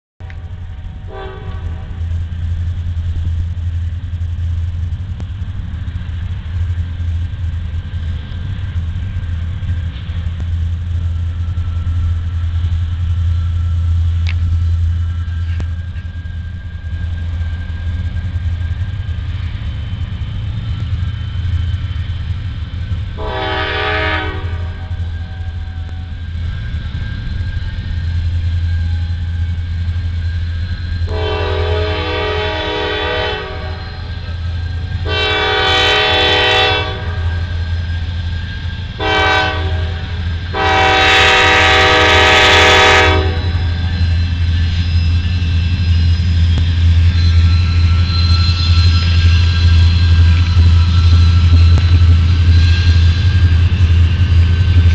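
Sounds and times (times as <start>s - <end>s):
locomotive engine rumble: 0.2s - 54.9s
locomotive air horn blasts: 0.3s - 2.1s, 23.2s - 25.9s, 31.1s - 37.6s, 39.0s - 43.8s.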